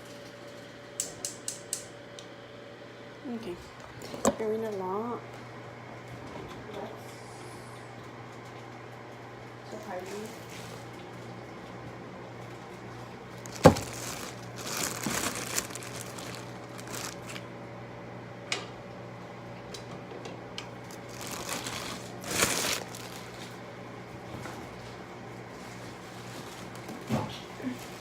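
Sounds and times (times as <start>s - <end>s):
low steady hum: 11.5s - 24.5s
rustling and crinkling: 13.4s - 17.5s, 20.8s - 23.6s, 24.4s - 27.1s.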